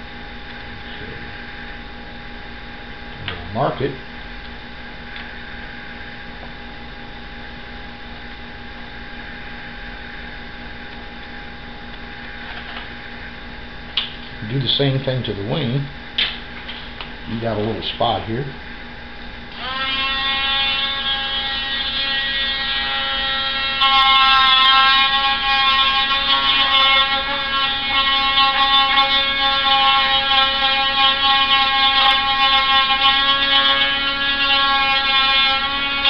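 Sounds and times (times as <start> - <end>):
small electric motor humming: 19.5 - 36.0.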